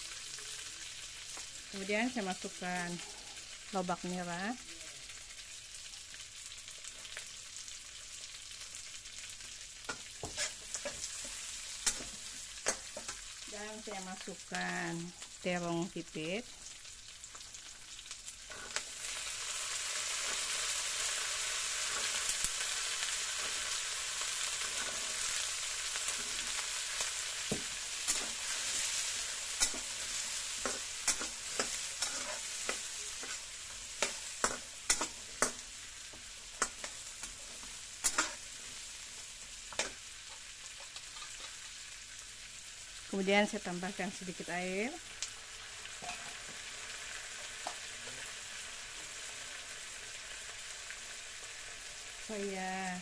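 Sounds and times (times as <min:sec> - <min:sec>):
food sizzling in hot oil: 0:00.0 - 0:53.0
spatula scraping a wok: 0:09.8 - 0:13.5, 0:18.4 - 0:41.7.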